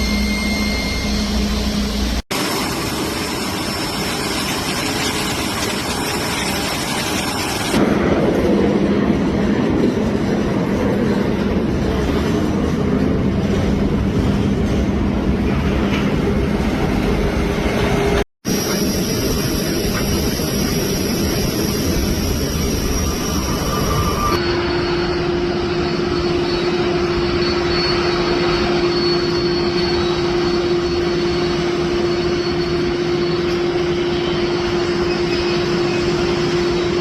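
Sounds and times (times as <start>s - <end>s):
propeller aircraft engine: 0.0s - 10.2s, 16.1s - 29.2s.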